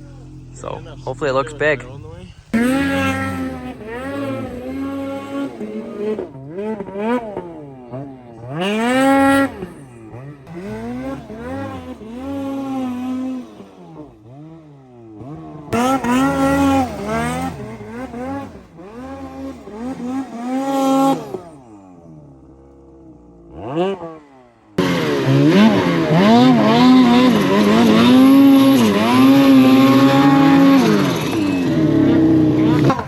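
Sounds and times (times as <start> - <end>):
snowmobile engines revving: 0.0 - 33.0.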